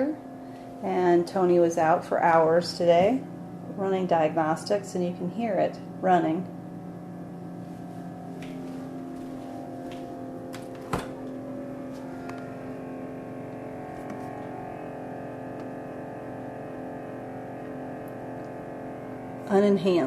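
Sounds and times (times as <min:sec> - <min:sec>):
refrigerator humming: 0:00.0 - 0:20.0.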